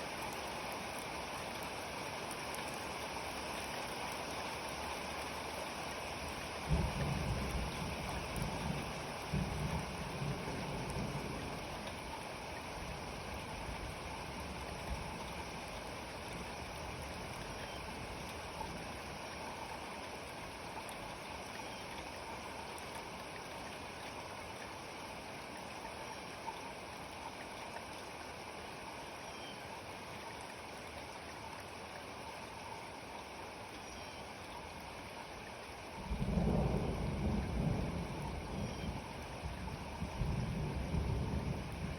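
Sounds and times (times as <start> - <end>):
steady rain: 0.0 - 41.9
thunder rumble: 6.7 - 11.6, 36.0 - 41.9.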